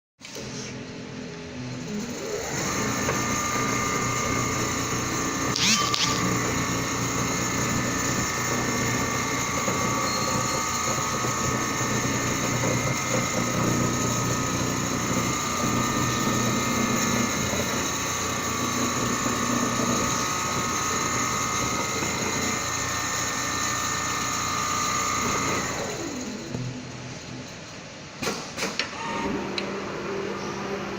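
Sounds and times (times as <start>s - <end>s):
sewing machine running: 1.7s - 26.6s
sewing machine squeak: 5.5s - 6.4s, 9.8s - 11.1s.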